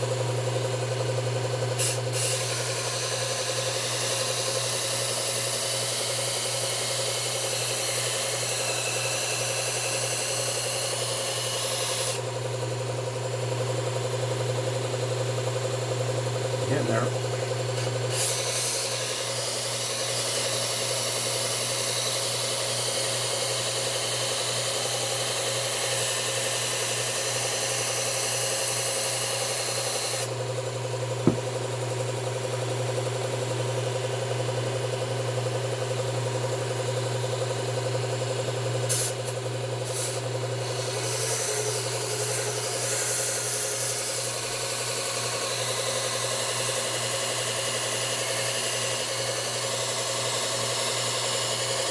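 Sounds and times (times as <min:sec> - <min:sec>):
blade grinding on belt: 0:01.8 - 0:12.2, 0:16.6 - 0:23.0, 0:39.8 - 0:51.9
belt sharpener humming: 0:16.3 - 0:22.4, 0:31.1 - 0:32.6
brief knock: 0:31.2 - 0:31.5.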